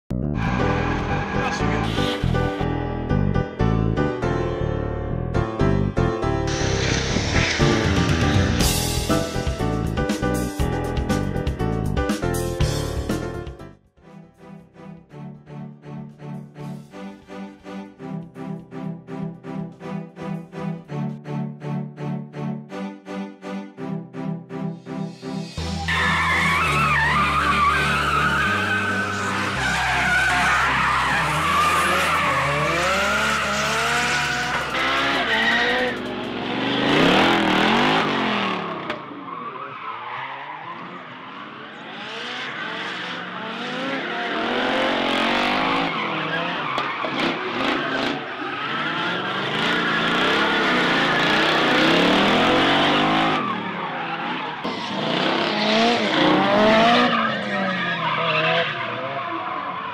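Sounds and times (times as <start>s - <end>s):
car engines revving: 0.4s - 2.5s, 6.5s - 9.1s, 25.8s - 59.9s
tyres squealing: 25.9s - 36.0s.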